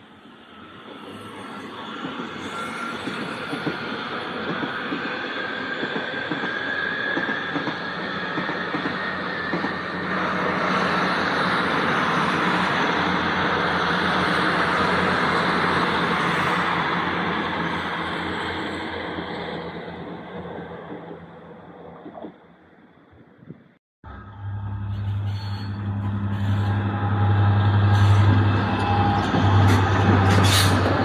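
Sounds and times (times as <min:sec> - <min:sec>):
faint high wheel squeal: 0:00.4 - 0:16.7, 0:24.2 - 0:30.8
diesel train rumble: 0:24.0 - 0:31.0
train wheels clacking over rail joints: 0:27.8 - 0:31.0.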